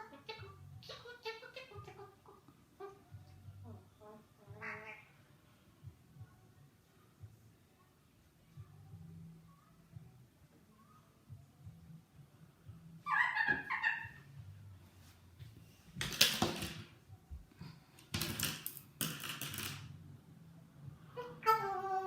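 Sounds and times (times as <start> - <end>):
parrot chattering and squawking: 0.0 - 5.2, 13.0 - 14.4, 21.2 - 22.0.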